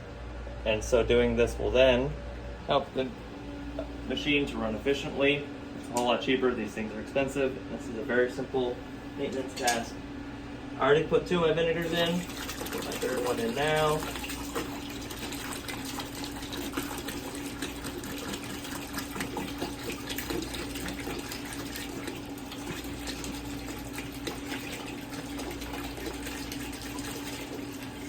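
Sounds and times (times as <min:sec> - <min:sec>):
steady hum: 0:00.0 - 0:28.0
liquid pouring into bucket: 0:11.8 - 0:28.0.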